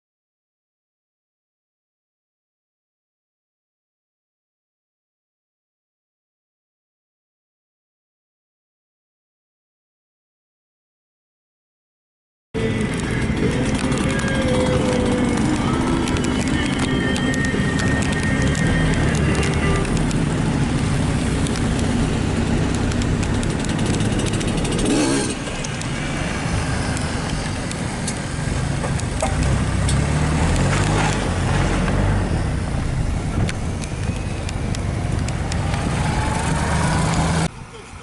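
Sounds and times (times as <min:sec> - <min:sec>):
jeep and motorcycle engines droning: 0:12.6 - 0:38.0.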